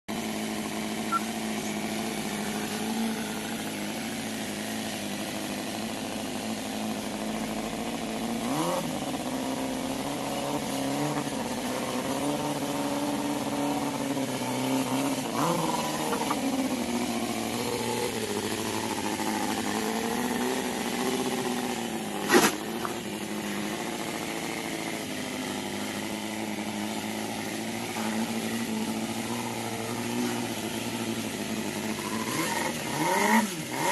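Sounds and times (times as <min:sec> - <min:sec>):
model engine revving: 0:00.1 - 0:33.9
sharp crack: 0:22.2 - 0:23.0.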